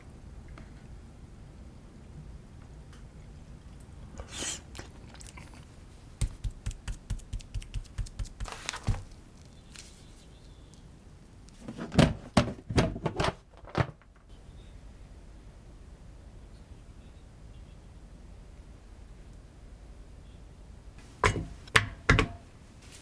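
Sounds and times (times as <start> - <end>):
quick even taps: 6.2 - 9.2.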